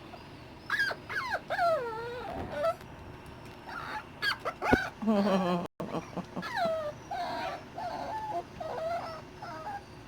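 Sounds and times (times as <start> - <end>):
puppy whining: 0.0 - 2.9, 3.6 - 10.0
puppy yipping: 0.6 - 2.8, 3.7 - 5.0, 6.4 - 9.9.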